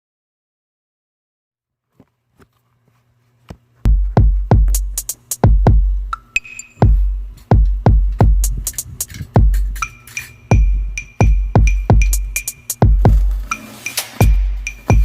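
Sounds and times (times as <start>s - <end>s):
bass drum kicks: 3.9s - 6.1s, 6.8s - 8.7s, 9.4s - 9.8s, 10.5s - 13.5s, 14.2s - 15.0s
hi-hat ticks: 4.4s - 15.0s.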